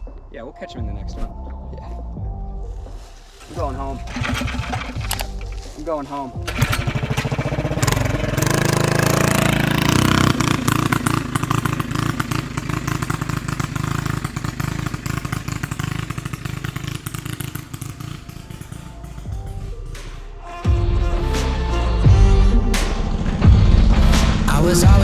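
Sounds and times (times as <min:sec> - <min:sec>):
mini bike engine revving: 0:03.4 - 0:20.0.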